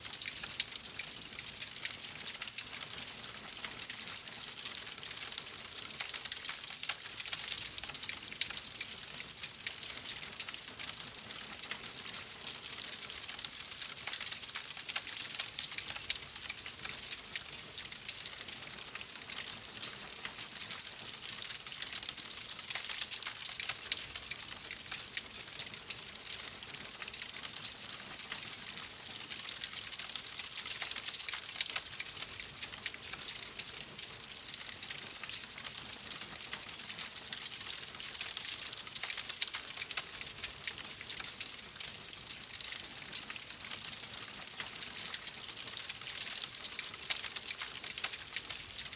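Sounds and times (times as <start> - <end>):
wood fire crackling: 29.4 - 48.5.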